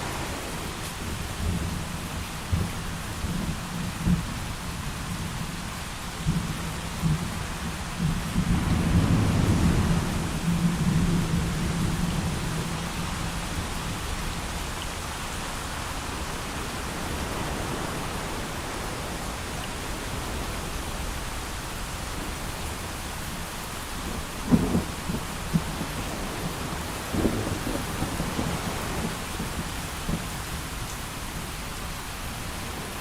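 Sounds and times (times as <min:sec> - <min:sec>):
heavy rain: 0:00.0 - 0:33.0
low thunder rumble: 0:06.2 - 0:14.4, 0:24.0 - 0:30.6.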